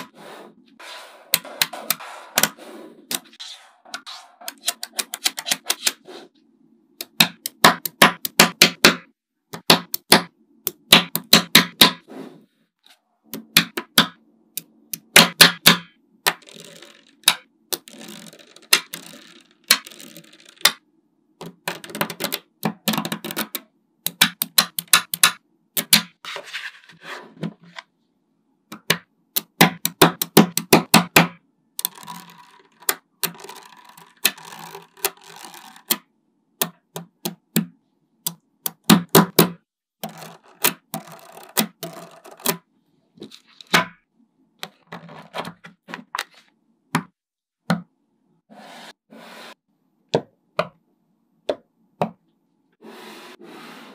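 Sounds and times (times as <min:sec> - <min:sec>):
magnet balls clicking: 0:31.8 - 0:36.0
magnet balls rattling: 0:31.8 - 0:36.0.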